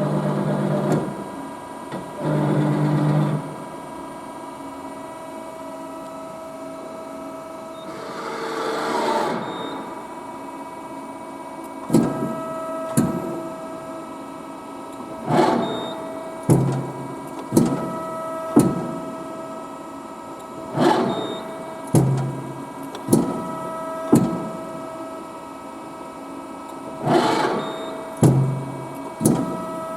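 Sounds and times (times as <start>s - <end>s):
machine clunks with rising whine: 15.2s - 19.3s, 20.6s - 24.9s, 26.9s - 29.9s.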